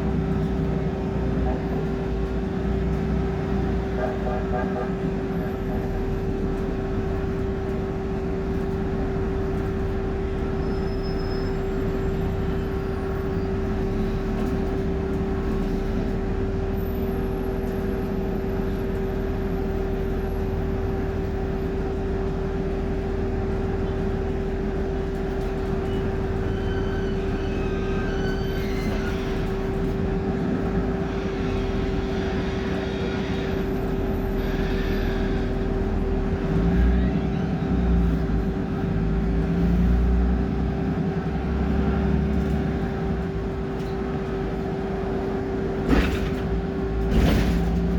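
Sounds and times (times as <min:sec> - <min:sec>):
bus engine running: 0:00.0 - 0:47.9.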